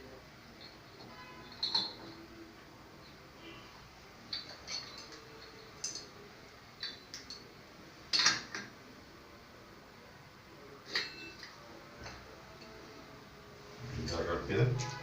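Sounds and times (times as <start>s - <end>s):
metallic clicks and clinks: 0.5s - 2.3s, 4.3s - 6.2s.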